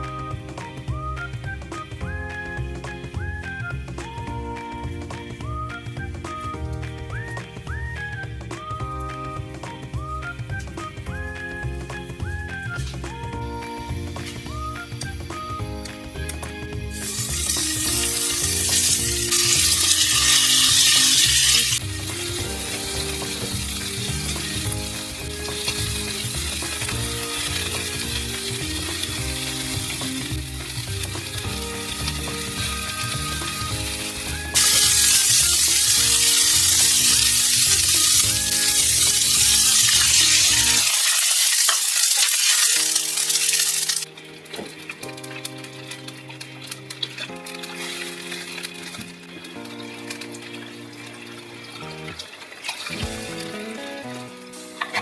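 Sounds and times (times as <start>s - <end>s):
background music with steady beat: 0.0s - 55.0s
food sizzling in a frying pan: 16.9s - 44.1s.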